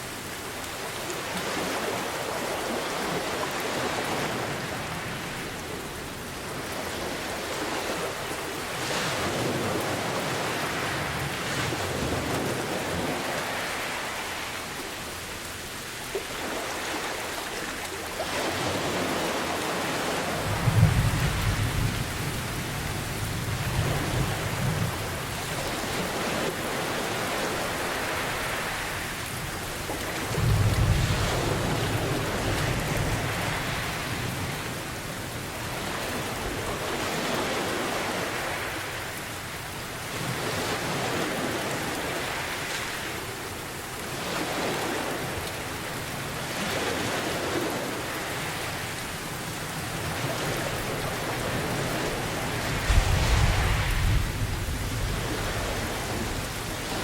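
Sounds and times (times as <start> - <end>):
heavy rain: 0.0 - 57.0
ocean waves washing in: 0.0 - 57.0
thunder rumbling: 52.2 - 57.0.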